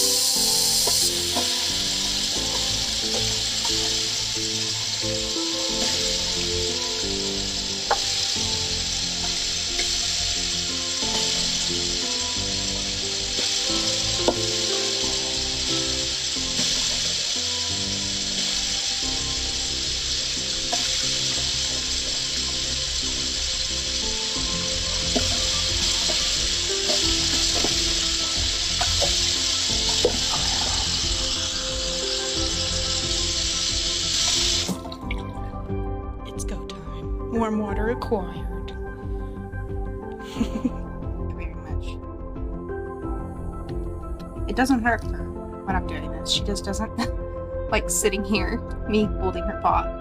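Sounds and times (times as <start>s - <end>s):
background music: 0.0s - 50.0s
tap water running into sink: 25.0s - 31.2s.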